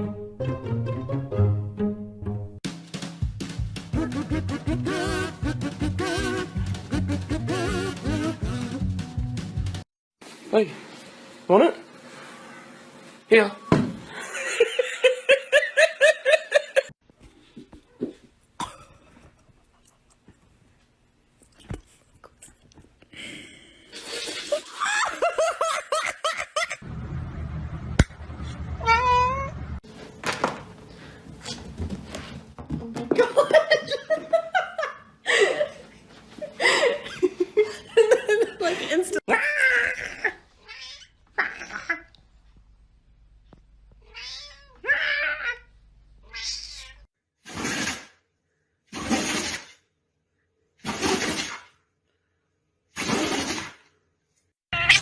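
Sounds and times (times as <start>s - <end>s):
cat meowing: 28.8s - 29.6s, 39.4s - 42.0s, 44.0s - 47.0s, 54.8s - 55.0s.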